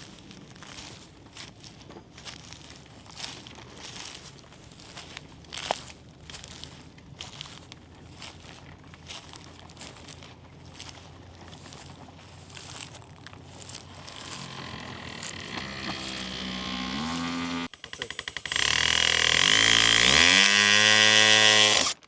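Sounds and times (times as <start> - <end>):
engine revving: 10.7 - 22.0.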